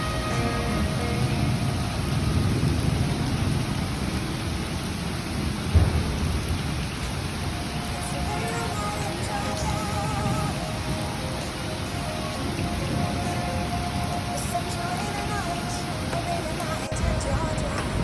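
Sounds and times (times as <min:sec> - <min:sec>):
steady rain: 0:00.0 - 0:18.0
thunder rumbling: 0:00.0 - 0:18.0
loud low boom: 0:05.7 - 0:07.6.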